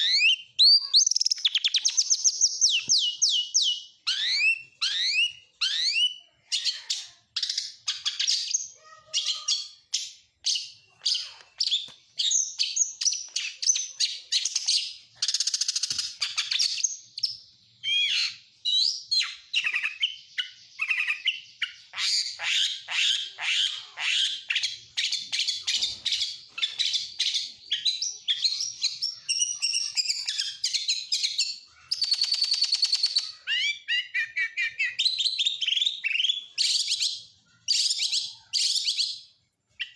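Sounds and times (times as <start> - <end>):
bird song with whistled sweeps: 9.5 - 39.9.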